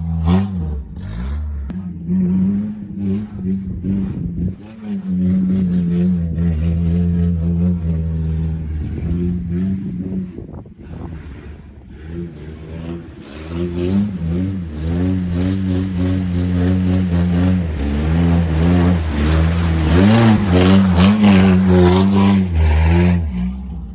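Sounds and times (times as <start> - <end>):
truck engine revving under load: 0.0 - 23.9.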